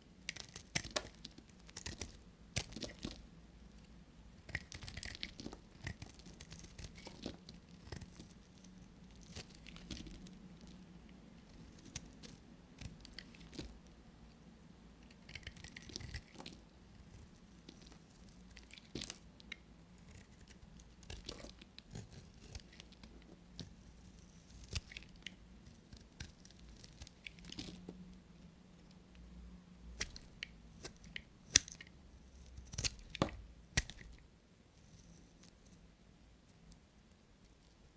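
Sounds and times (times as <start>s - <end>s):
knife cutting dry soap: 4.4s - 10.3s, 20.0s - 27.9s, 30.0s - 34.2s.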